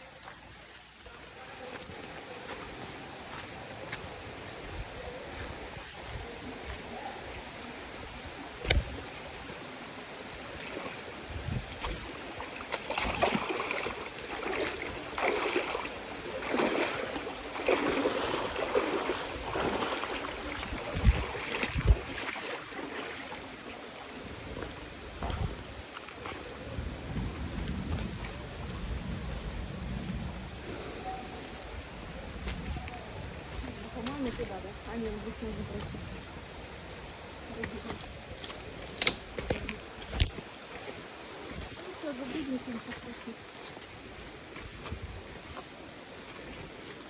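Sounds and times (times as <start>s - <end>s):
footsteps and rustling: 0.0s - 31.6s, 32.3s - 47.0s.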